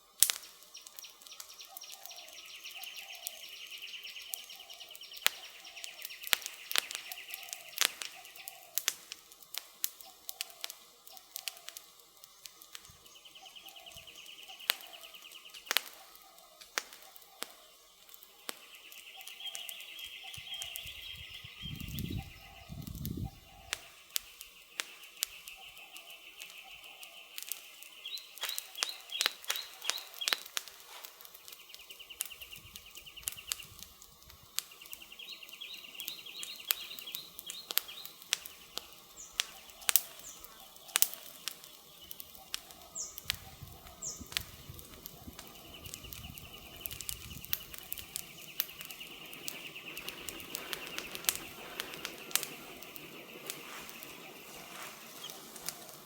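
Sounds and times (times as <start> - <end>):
campfire crackling and popping: 0.0 - 56.0
low hoots: 34.9 - 56.0.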